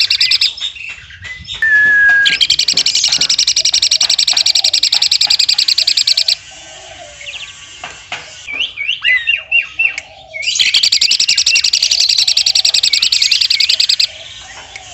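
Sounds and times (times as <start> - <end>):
bird rattle of sharp notes: 1.7 - 6.4, 10.7 - 14.1.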